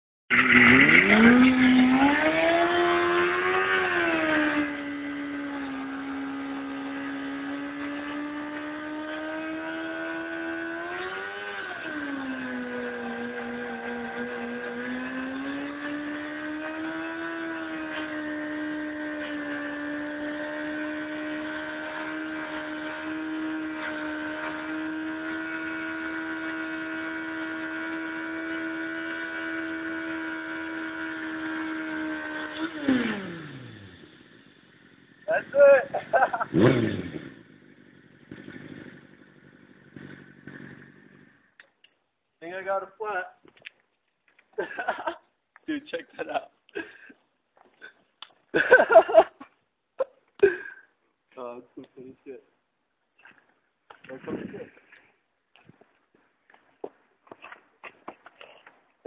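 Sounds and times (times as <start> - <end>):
motorcycle engine at high revs: 0.3 - 41.6, 44.6 - 45.2, 48.6 - 49.4.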